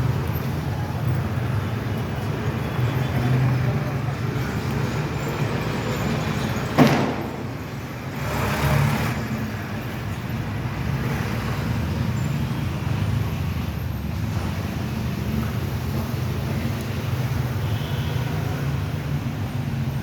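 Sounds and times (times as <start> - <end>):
road traffic engine hum: 0.0 - 20.0
vehicle passing close: 6.7 - 9.6.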